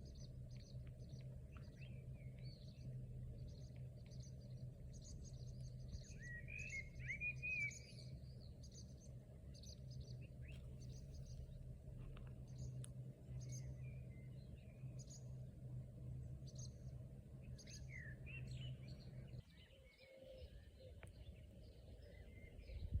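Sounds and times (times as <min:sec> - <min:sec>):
hum: 0:00.0 - 0:23.0
small birds chirping: 0:00.0 - 0:23.0
low rumble: 0:21.4 - 0:23.0.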